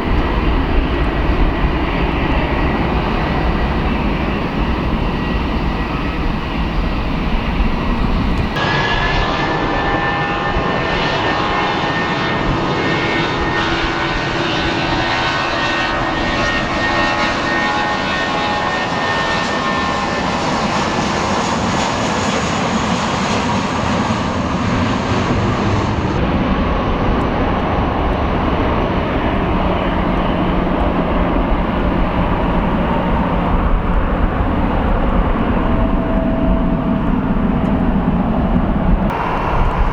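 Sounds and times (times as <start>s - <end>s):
jet engines at takeoff: 0.0s - 39.9s
high whining tones: 39.1s - 39.9s.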